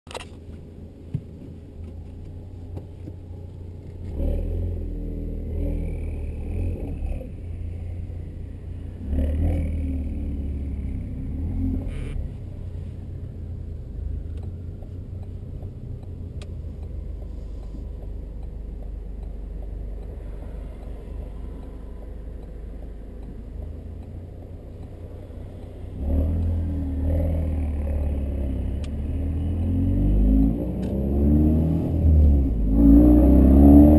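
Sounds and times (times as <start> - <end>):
car engine revving hard: 9.0 - 12.2, 25.9 - 33.9.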